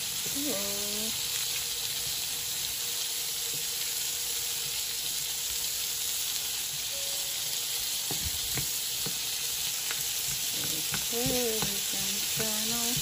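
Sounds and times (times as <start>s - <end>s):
vegetables sizzling in butter: 0.0s - 13.0s
spatula knocking in a pan: 8.1s - 9.3s, 9.9s - 13.0s.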